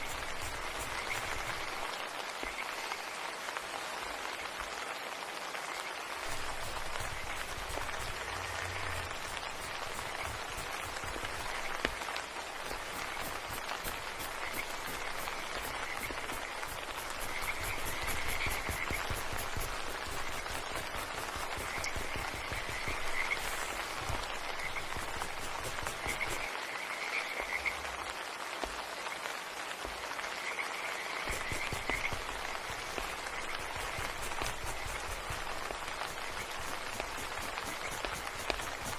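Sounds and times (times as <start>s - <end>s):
background hiss: 0.0s - 38.9s
frogs trilling croaks: 12.6s - 27.8s.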